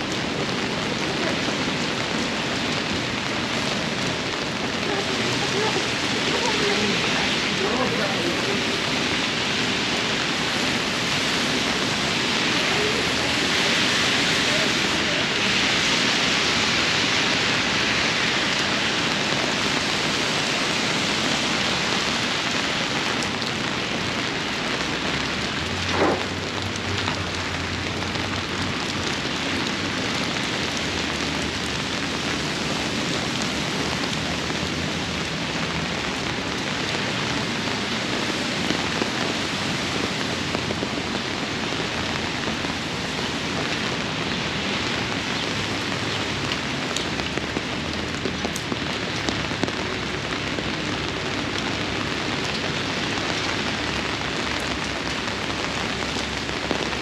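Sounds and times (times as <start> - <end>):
heavy rain splashing: 0.0 - 57.0
short sharp sound: 25.9 - 26.4.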